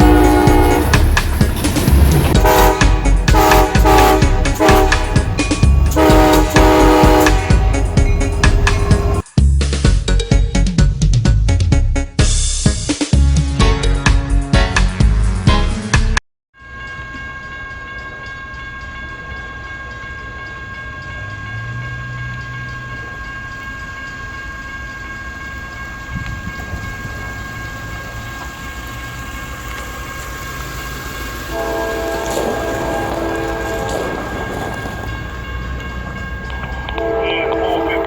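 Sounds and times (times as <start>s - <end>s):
locomotive horn chord: 0.0s - 9.2s, 31.5s - 35.2s, 36.8s - 38.0s
freight locomotives rumbling: 0.0s - 9.3s, 16.6s - 38.0s.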